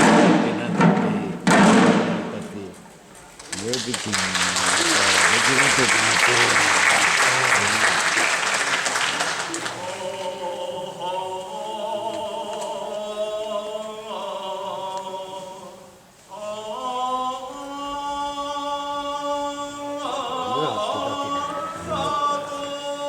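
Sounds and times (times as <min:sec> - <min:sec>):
voices chanting in unison: 0:09.1 - 0:23.0.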